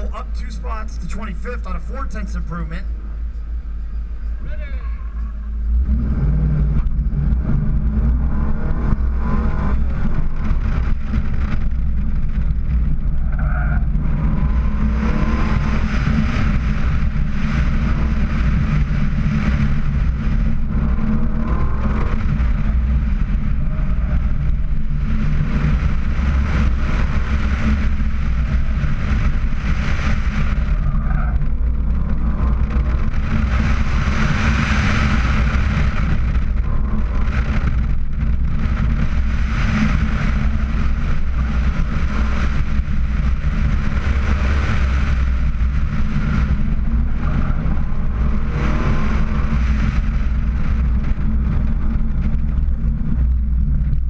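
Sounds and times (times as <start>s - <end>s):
car engine pulling hard: 0.0s - 54.0s
wind rushing over microphone: 0.0s - 54.0s.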